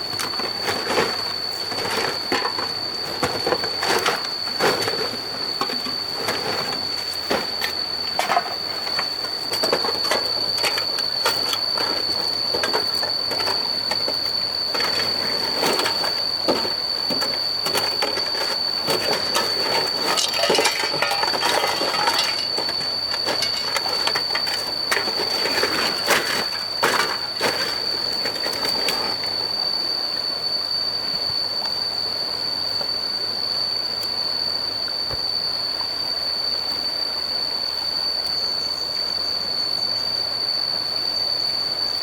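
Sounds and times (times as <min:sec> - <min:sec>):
steady high-pitched whine: 0:00.0 - 0:42.0
debris clattering and scraping: 0:00.1 - 0:29.5.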